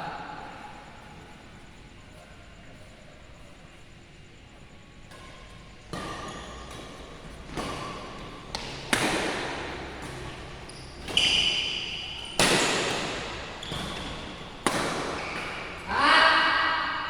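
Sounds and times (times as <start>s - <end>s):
rackets hitting shuttlecock: 5.1s - 17.0s.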